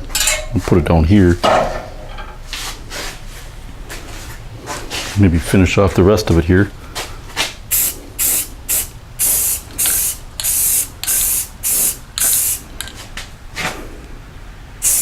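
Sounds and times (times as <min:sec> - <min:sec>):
spray can hissing bursts: 0:07.7 - 0:12.9.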